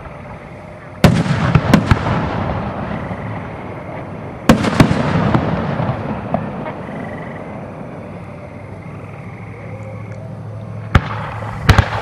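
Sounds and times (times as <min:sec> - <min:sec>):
rumbling echo: 0:00.0 - 0:09.2, 0:10.8 - 0:12.0
small firework cracks: 0:10.9 - 0:12.0.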